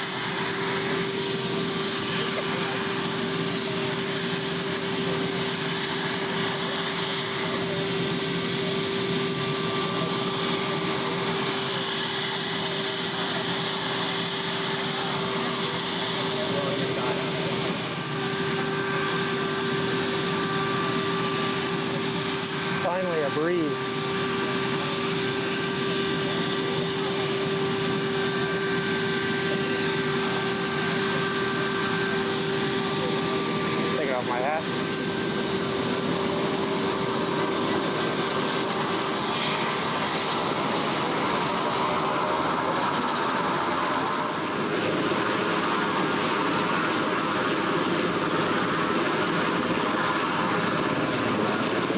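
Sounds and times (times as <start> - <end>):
helicopter turbine engines running: 0.0 - 51.9.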